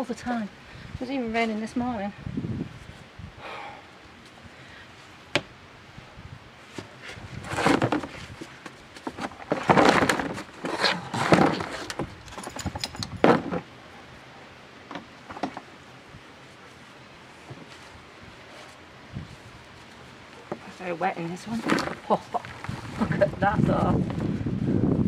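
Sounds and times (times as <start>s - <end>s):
hands scraping through compost: 6.7s - 12.2s, 16.5s - 24.0s.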